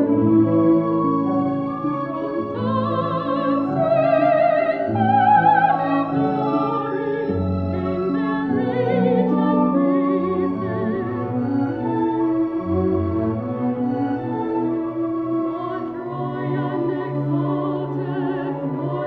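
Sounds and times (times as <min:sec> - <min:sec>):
symphony orchestra chords: 0:00.0 - 0:19.0
soprano singing with vibrato: 0:02.2 - 0:11.3, 0:15.5 - 0:19.0.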